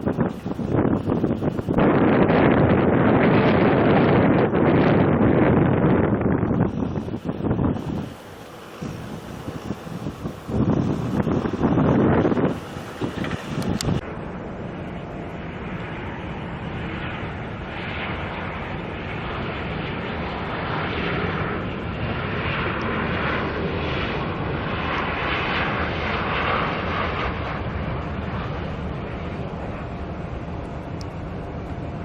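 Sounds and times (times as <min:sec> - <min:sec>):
airliner engines passing: 0:00.0 - 0:32.0.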